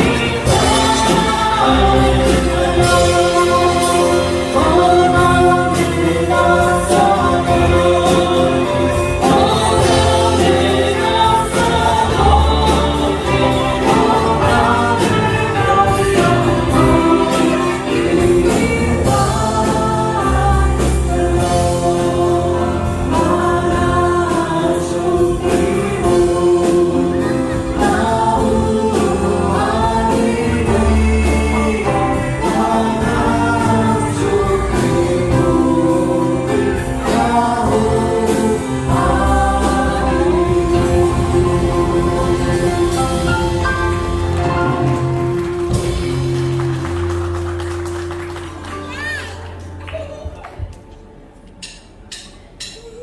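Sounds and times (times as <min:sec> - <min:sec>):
choir singing gospel song: 0:00.0 - 0:48.4.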